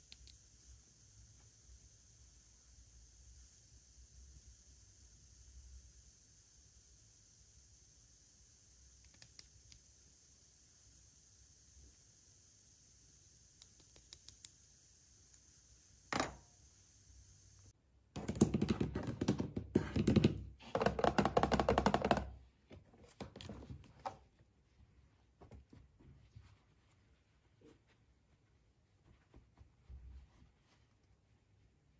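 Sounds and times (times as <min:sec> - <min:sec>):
knock: 0:18.2 - 0:22.3.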